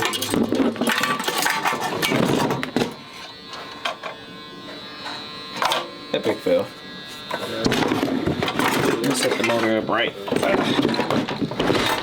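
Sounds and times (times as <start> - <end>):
pull-start rope rattling and scraping: 10.4 - 12.0.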